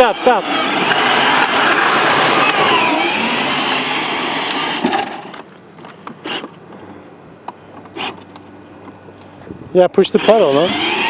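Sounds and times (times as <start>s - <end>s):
toy car motor grinding: 0.0s - 5.4s, 6.2s - 6.6s, 7.9s - 8.3s, 10.1s - 11.0s.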